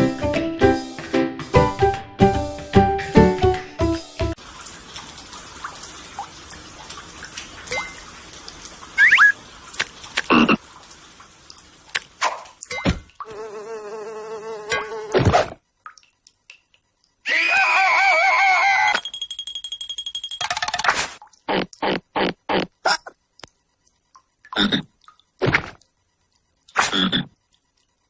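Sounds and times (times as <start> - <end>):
cartoon frog croaks: 10.2 - 10.6, 21.5 - 23.2, 24.5 - 25.8, 26.8 - 27.4
insect buzz: 13.2 - 15.6.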